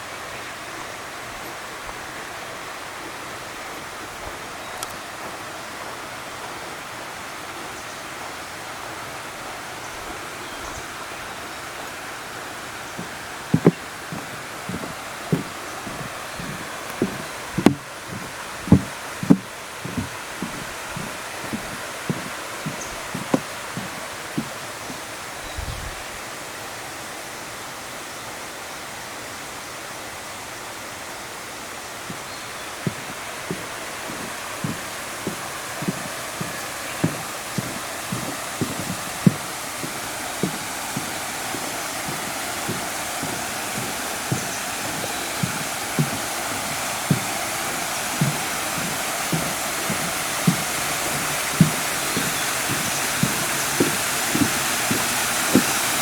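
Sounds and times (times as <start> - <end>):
running water: 0.0 - 56.0
soft footsteps on path: 10.4 - 25.5, 31.9 - 56.0.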